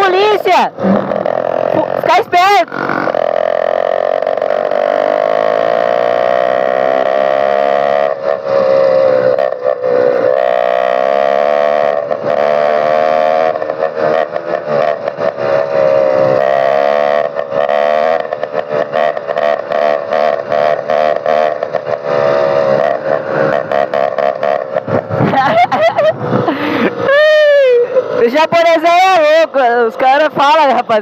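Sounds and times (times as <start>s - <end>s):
motorized bicycle engine buzzing: 0.7s - 28.3s.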